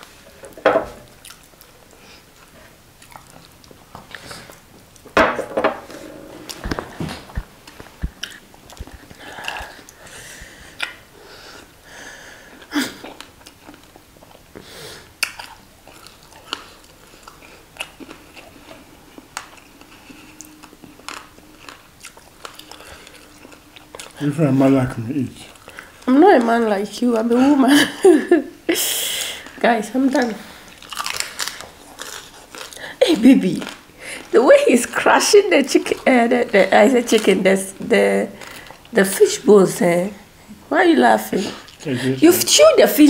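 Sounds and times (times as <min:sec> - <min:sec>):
wet chewing smacks: 0:06.7 - 0:10.1.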